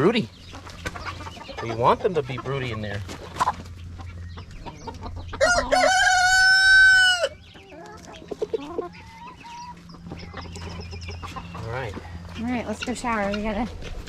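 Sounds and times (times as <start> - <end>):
chickens clucking: 0.0 - 14.0
rooster crowing: 5.4 - 7.4.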